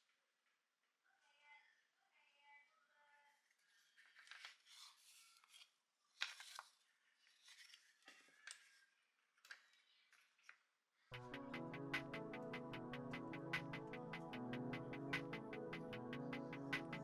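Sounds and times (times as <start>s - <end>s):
electronic music with steady beat: 11.1s - 17.0s.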